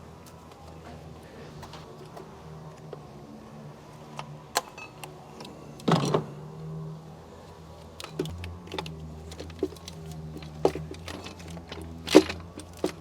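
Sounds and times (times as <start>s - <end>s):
tools clinking on metal: 8.0s - 13.0s.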